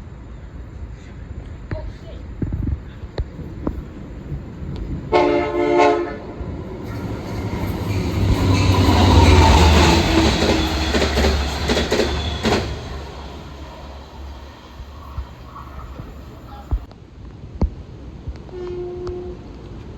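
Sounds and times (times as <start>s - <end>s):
train passing rumble: 0.0s - 16.9s
multi-tone train horn blast: 5.1s - 16.6s, 18.5s - 19.5s.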